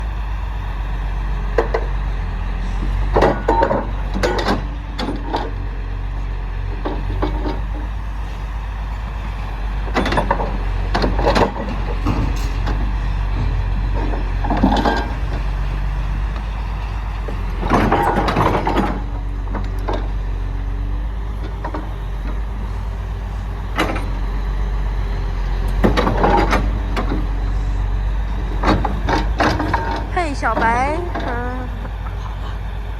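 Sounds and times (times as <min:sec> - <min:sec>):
excavator diesel engine drone: 0:00.0 - 0:32.9
metallic clanks and squeaks: 0:02.6 - 0:05.6, 0:06.8 - 0:20.6.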